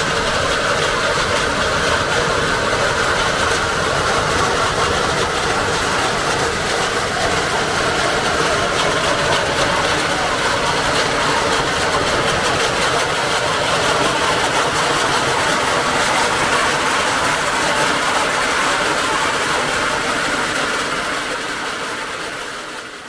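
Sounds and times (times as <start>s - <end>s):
farm machinery engine running: 0.0s - 23.0s.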